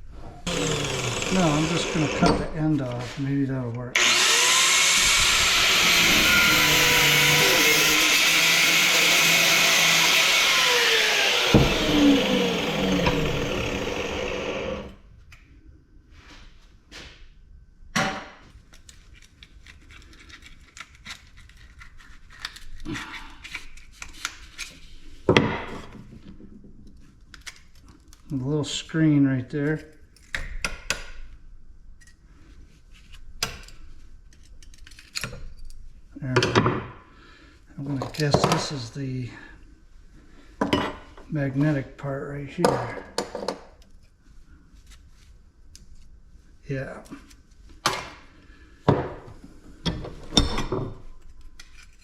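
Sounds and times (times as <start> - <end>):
power tool cutting steel: 0.4 - 2.6, 4.0 - 15.0.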